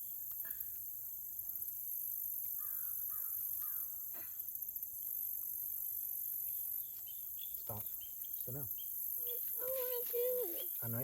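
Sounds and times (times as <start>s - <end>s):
insects droning: 0.0s - 11.0s
crow cawing: 2.6s - 3.9s.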